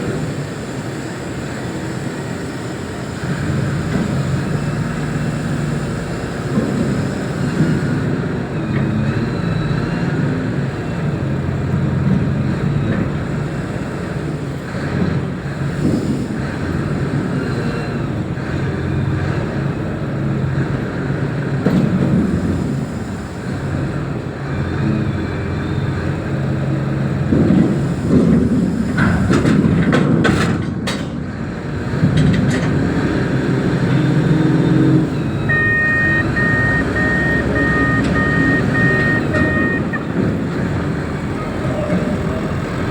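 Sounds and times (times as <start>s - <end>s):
diesel engine running: 0.0s - 29.7s, 31.4s - 42.9s
reversing alarm beeping: 34.7s - 40.4s.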